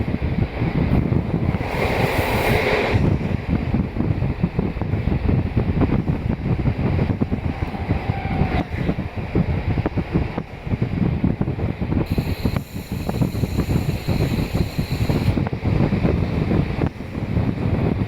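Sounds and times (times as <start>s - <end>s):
railcar engine rumble: 0.0s - 18.0s
wheels on rails: 0.0s - 18.0s
brief hiss: 12.1s - 15.4s.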